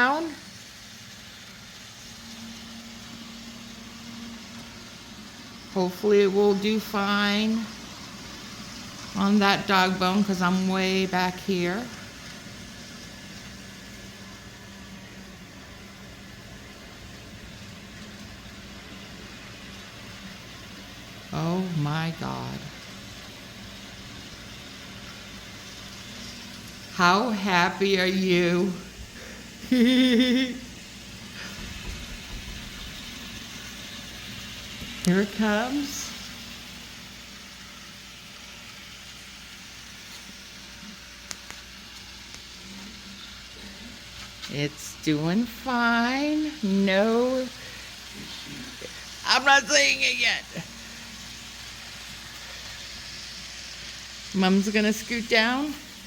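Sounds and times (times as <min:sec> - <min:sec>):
model train humming and whirring: 0:00.0 - 0:56.0.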